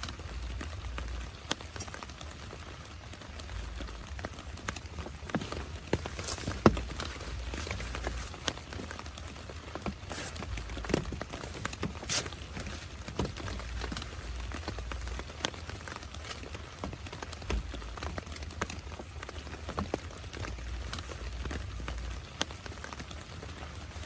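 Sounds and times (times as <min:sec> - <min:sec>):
steady rain: 0:00.0 - 0:24.0
heavy drops tapping: 0:05.1 - 0:09.0.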